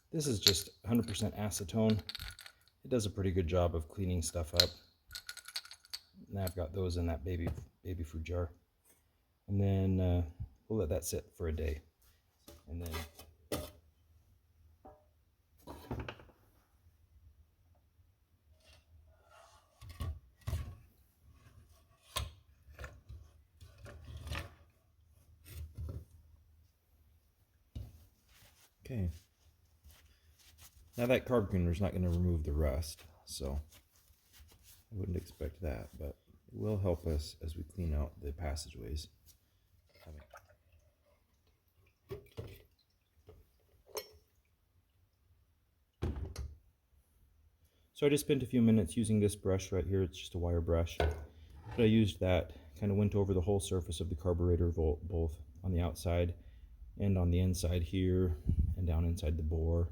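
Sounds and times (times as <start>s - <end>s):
metal parts clinking and knocking: 0.2s - 2.8s, 4.6s - 6.6s
parts handled on a workbench: 0.2s - 2.8s, 4.5s - 6.6s, 14.8s - 16.6s, 27.7s - 32.2s, 51.0s - 51.9s.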